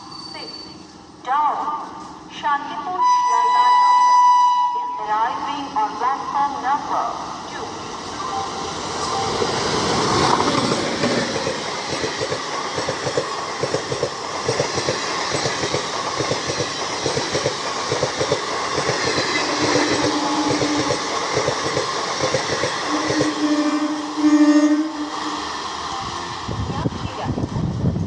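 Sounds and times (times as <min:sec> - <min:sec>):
train wheels clattering over rail joints: 0:10.0 - 0:23.3.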